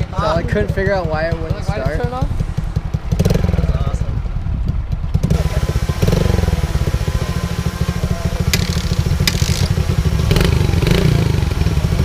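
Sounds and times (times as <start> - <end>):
motorbike engine idling: 0.0 - 12.0
sharp clicks: 8.5 - 9.8.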